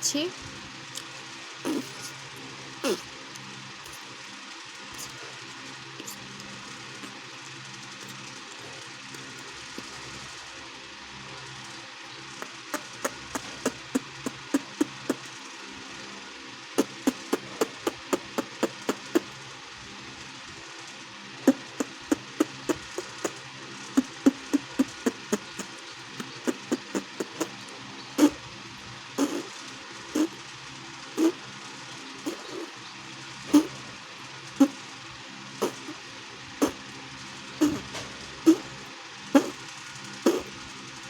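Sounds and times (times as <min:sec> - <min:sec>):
cheek popping clicks: 0:16.8 - 0:19.2, 0:24.0 - 0:25.6, 0:26.2 - 0:27.5.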